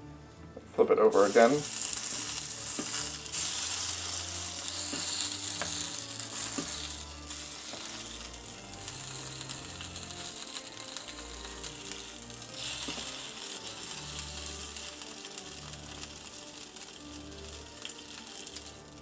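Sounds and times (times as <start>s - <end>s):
patty sizzling in a pan: 1.1s - 19.0s.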